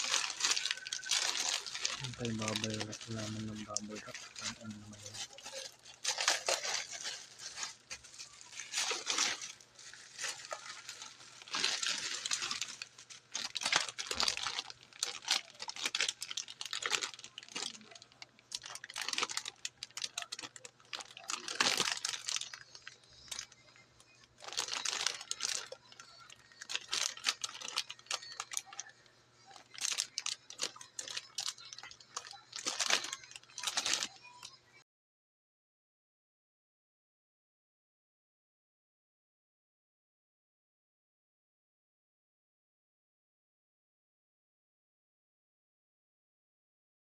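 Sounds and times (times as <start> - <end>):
packaging wrapper crinkling: 0.0 - 34.6.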